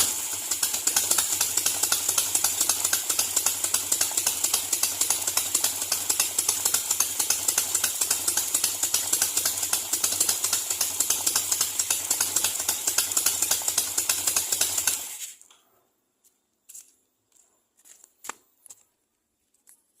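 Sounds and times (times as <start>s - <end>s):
motorcycle engine idling: 0.0s - 15.2s.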